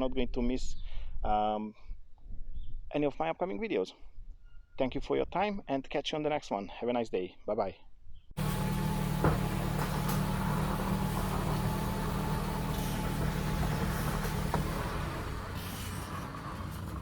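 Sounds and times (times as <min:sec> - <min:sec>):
car engine idling: 0:08.4 - 0:17.0.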